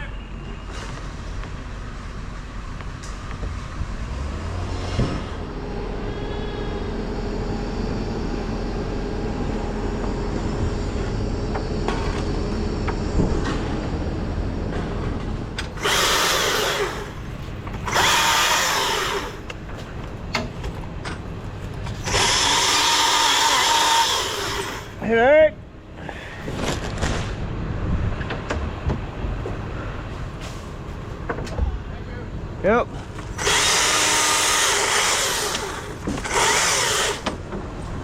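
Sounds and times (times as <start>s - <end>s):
truck engine running: 1.0s - 26.0s
power tool bursts: 15.7s - 17.2s, 17.8s - 19.4s, 22.0s - 25.0s, 33.2s - 37.4s.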